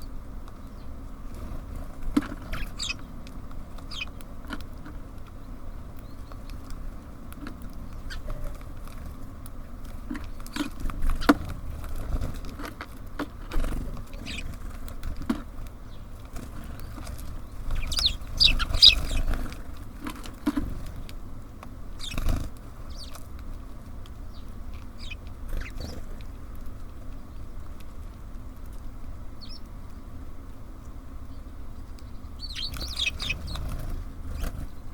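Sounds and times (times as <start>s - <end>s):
birds pecking taps: 2.0s - 30.0s, 31.2s - 33.8s
short high bird chirps: 2.6s - 3.0s, 17.7s - 19.3s, 32.4s - 33.6s
wing flutters: 13.4s - 15.4s, 16.2s - 21.1s, 21.9s - 23.3s, 24.8s - 26.6s, 32.4s - 34.9s.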